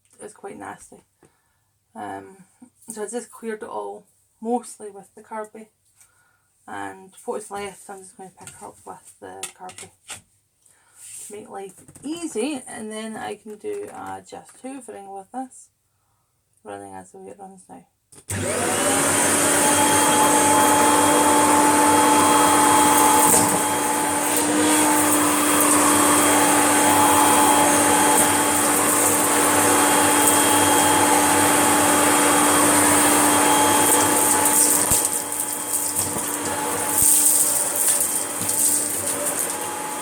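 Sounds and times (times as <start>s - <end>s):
vacuum cleaner whining hum: 18.3s - 40.0s.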